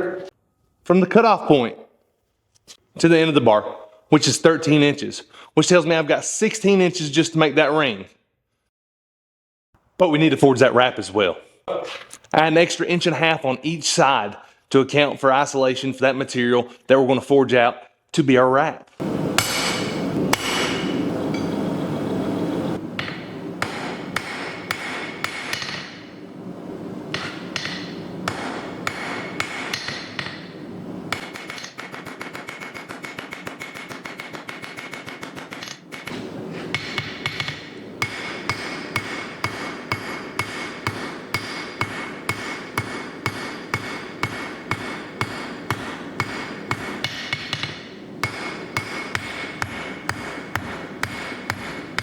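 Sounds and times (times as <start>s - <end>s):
hammer striking steel on anvil: 19.0s - 21.8s, 23.0s - 26.2s, 27.0s - 52.0s.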